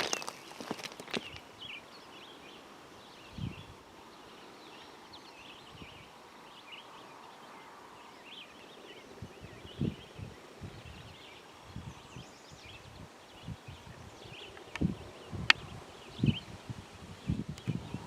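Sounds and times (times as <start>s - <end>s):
footsteps: 0.0s - 1.4s
birds chirping: 0.0s - 18.0s.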